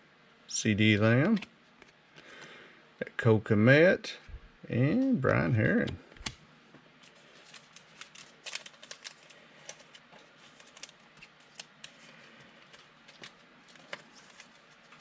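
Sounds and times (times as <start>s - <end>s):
cards clicking and rustling: 7.0s - 15.0s.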